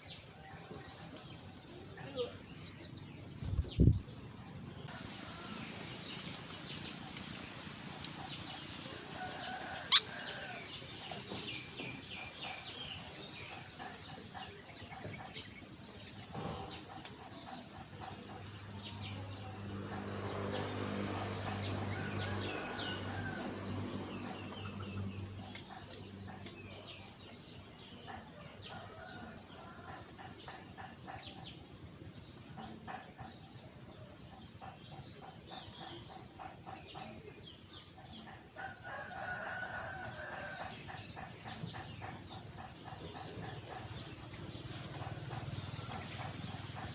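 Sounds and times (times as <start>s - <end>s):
birds chirping: 0.0s - 46.9s.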